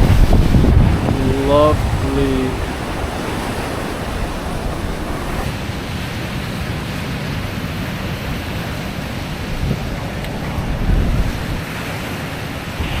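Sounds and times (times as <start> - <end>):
wind on microphone: 0.0 - 5.5
ocean surf washing in: 0.0 - 5.6.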